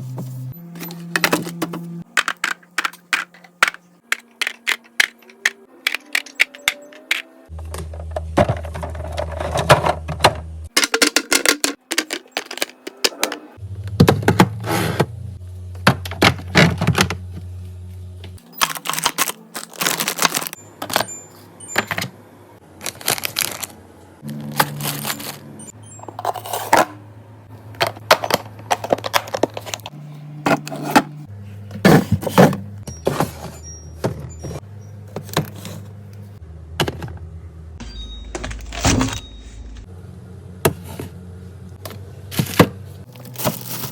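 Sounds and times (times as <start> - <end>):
containers knocking and scraping: 0.9 - 15.1.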